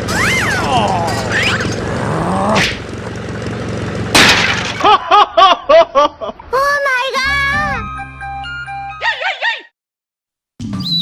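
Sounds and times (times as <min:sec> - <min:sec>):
cartoon swooping glide: 0:00.0 - 0:02.9
cartoon crash burst: 0:02.4 - 0:02.8
cartoon smash burst: 0:02.5 - 0:02.9, 0:04.2 - 0:04.9.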